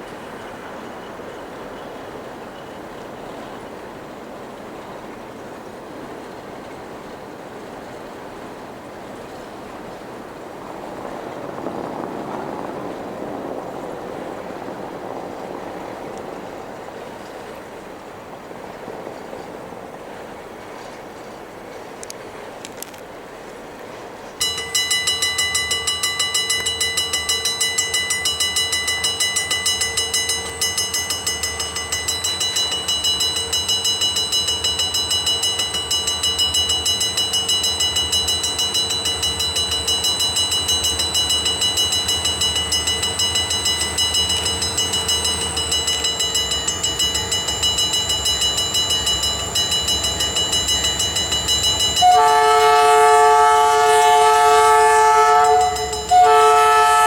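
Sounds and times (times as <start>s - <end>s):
diesel locomotive rumble: 0.0s - 22.6s, 24.0s - 57.0s
high whine: 24.4s - 57.0s
locomotive air horn: 51.9s - 57.0s.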